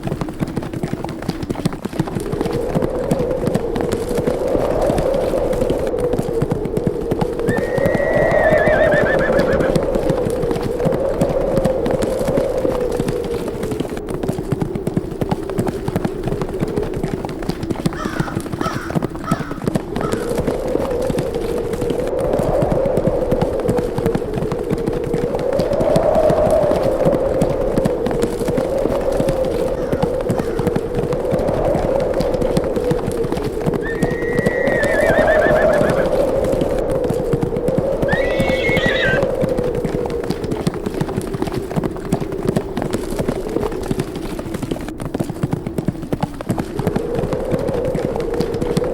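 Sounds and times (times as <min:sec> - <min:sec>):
horses galloping: 0:00.0 - 0:48.9
wind: 0:00.0 - 0:48.9
horse whinnying: 0:07.5 - 0:09.8, 0:33.8 - 0:36.2, 0:38.1 - 0:39.3.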